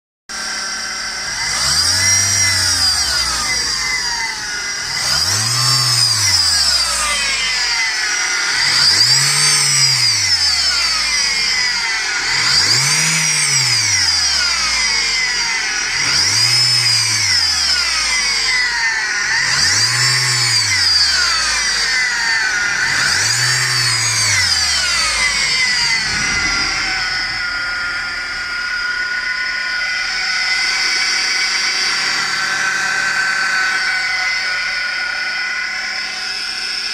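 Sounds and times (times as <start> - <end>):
car engine revving: 0.3 - 36.9
high belt whine: 24.7 - 36.8.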